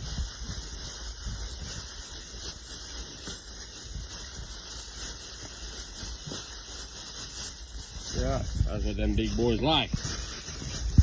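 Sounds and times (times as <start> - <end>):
faint rustles and taps: 0.0 - 11.0
outdoor background hiss: 0.0 - 11.0.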